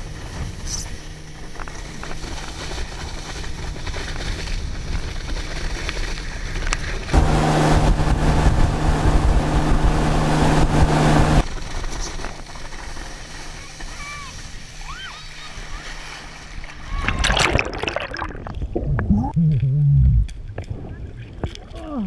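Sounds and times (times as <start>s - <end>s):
motorboat engine running: 7.2s - 11.4s.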